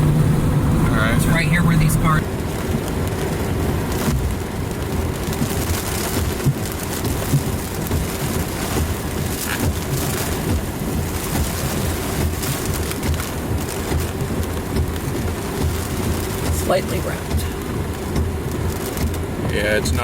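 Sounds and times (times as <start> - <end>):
low rumble: 0.0 - 2.8
rain and wind on vehicle: 0.0 - 20.0.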